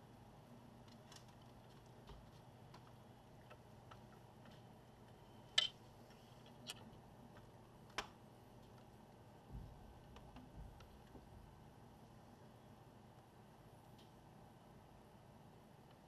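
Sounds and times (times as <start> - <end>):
tools and small parts clicking: 5.6 - 5.8, 6.4 - 7.0.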